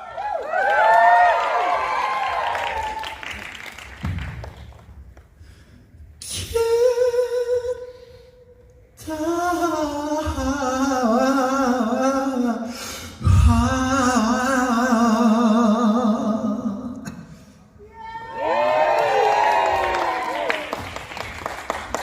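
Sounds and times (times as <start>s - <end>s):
singer breathing: 5.4s - 6.2s, 7.8s - 8.6s, 12.6s - 13.2s.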